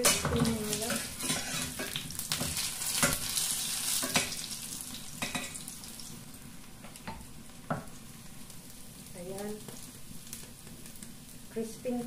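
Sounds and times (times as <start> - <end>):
spatula scraping a pan: 0.0 - 4.4
food sizzling in oil: 0.0 - 12.0.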